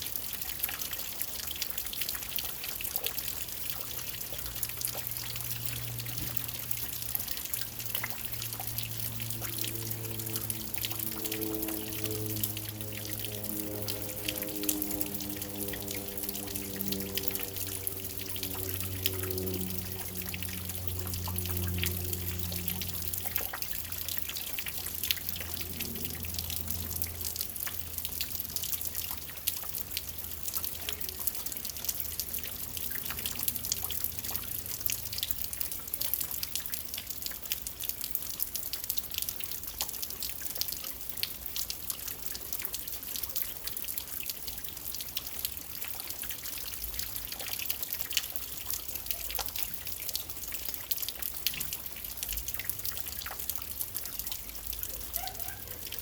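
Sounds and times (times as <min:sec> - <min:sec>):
rain falling: 0:00.0 - 0:56.0
low hum: 0:04.3 - 0:30.5.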